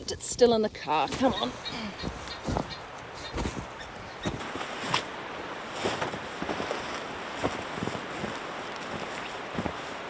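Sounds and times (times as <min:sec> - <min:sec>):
footsteps in snow: 0:01.1 - 0:10.0
wind on microphone: 0:01.2 - 0:10.0.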